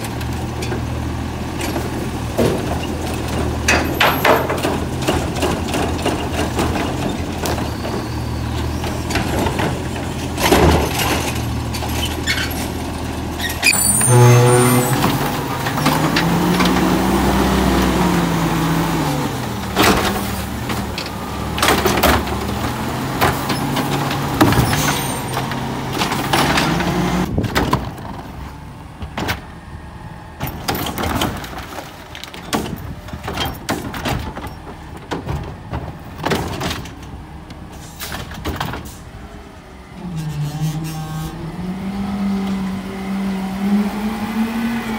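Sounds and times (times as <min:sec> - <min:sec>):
garbage truck engine: 0:00.0 - 0:44.9
cart tipper clunks: 0:01.6 - 0:12.8
carts banging: 0:01.6 - 0:17.1
trash falling into hopper: 0:01.8 - 0:07.6, 0:09.2 - 0:11.6
engine revving: 0:40.1 - 0:44.9.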